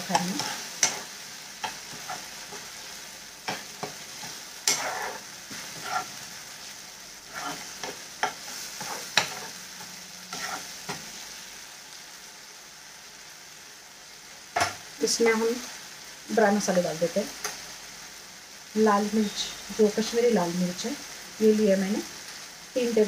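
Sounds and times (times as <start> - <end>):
spatula scraping a pan: 0.0 - 6.4, 7.2 - 11.2
peas sizzling in a pan: 0.0 - 23.0.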